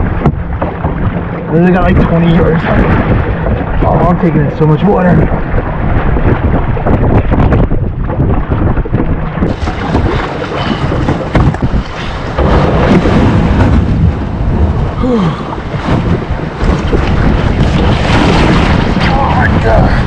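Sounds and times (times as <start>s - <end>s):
waves splashing against kayak: 0.0s - 20.0s
wind buffeting microphone: 0.0s - 20.0s.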